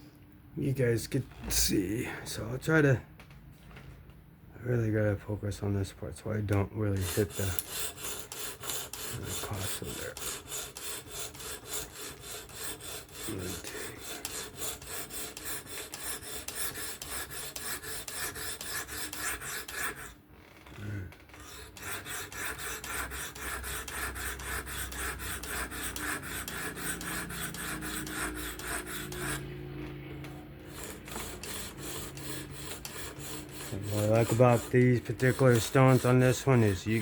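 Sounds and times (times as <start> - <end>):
knife blade rasping on sharpening stone: 7.0 - 20.1, 21.4 - 29.5, 30.7 - 37.0.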